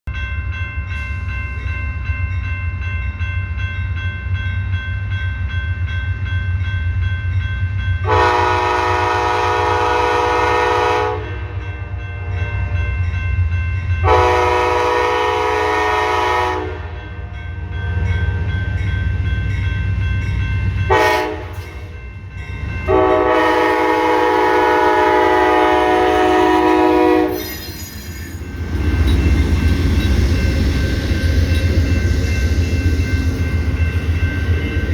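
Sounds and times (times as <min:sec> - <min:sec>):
train horn blasts: 0:08.0 - 0:12.8, 0:14.0 - 0:17.7, 0:20.9 - 0:21.9, 0:22.9 - 0:27.8
diesel locomotive rumble: 0:17.6 - 0:34.9.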